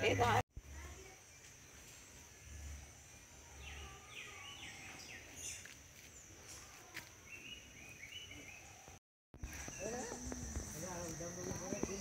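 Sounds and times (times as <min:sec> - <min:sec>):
birds calling faintly: 0:00.0 - 0:12.0
high insect drone: 0:09.4 - 0:12.0.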